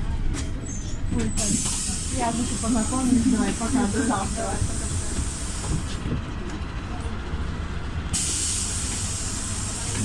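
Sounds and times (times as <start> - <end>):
bus engine droning: 0.0 - 10.0.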